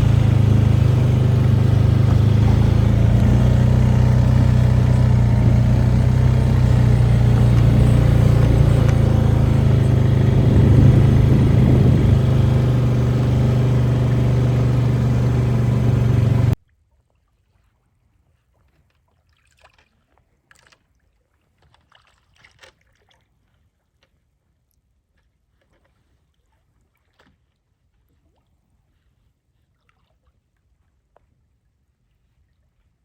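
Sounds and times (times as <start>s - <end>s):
small boat motor running: 0.0s - 16.6s.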